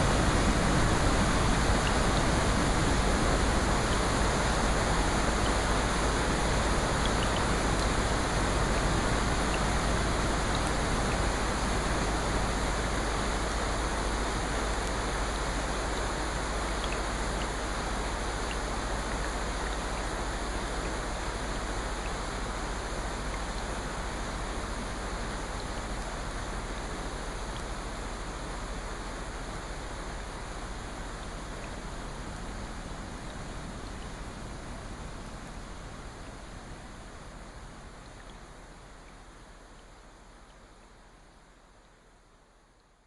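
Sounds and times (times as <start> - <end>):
rushing rain and water: 0.0 - 43.0
faint ticks: 16.8 - 17.6, 31.1 - 34.5, 37.4 - 41.3.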